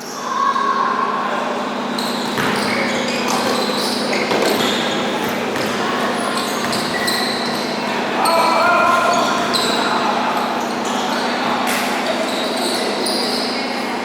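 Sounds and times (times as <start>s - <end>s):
crowd and court noise: 0.0s - 14.0s
shoes squeaking on court: 1.8s - 14.0s
basketball bouncing: 2.3s - 7.6s.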